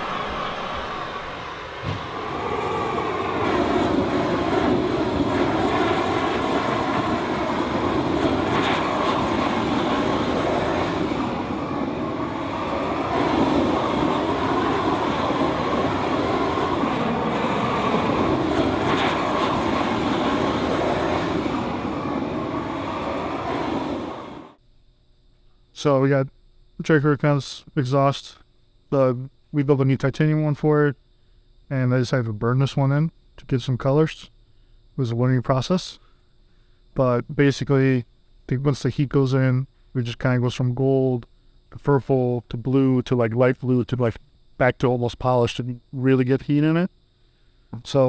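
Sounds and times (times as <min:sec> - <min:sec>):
torch flame rushing: 0:00.0 - 0:24.6.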